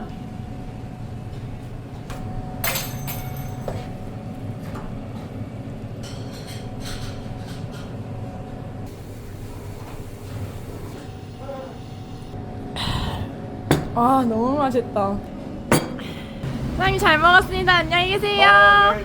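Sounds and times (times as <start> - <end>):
low background hum: 0.0 - 19.0
tableware clinking: 2.6 - 3.9, 6.0 - 8.0.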